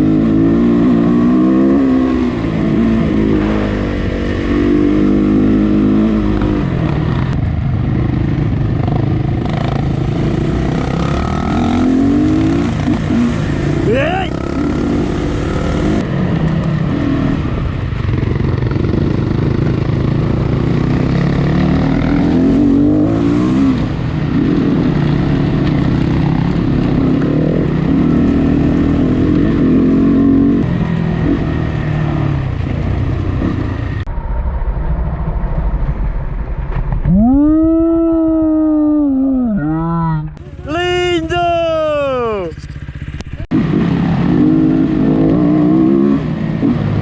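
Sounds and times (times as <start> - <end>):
dirt bike engine revving: 0.0 - 7.4, 8.0 - 34.1, 40.4 - 47.0
wind and riding noise: 0.0 - 47.0.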